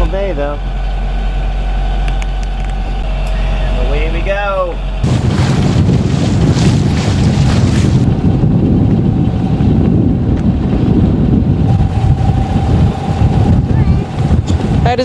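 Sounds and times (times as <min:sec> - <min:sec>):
wind buffeting microphone: 0:05.0 - 0:15.0
faint steady hum: 0:11.3 - 0:15.0.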